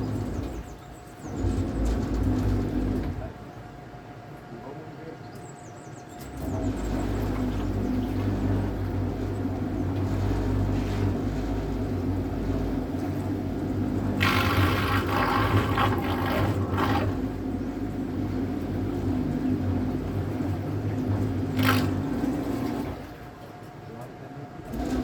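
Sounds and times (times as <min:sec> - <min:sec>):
electric boat motor humming: 0:00.0 - 0:04.1, 0:06.2 - 0:23.8
water splashing against hull: 0:06.2 - 0:23.4.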